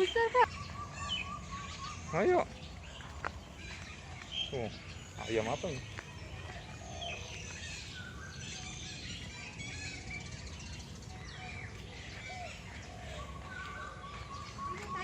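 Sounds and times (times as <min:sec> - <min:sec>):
birds chirping and whistling: 0:00.0 - 0:15.0.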